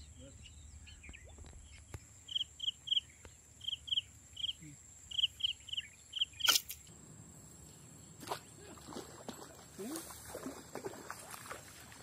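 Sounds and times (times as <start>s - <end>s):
small bird chirping: 0.0s - 6.9s
faint high insect drone: 0.0s - 12.0s.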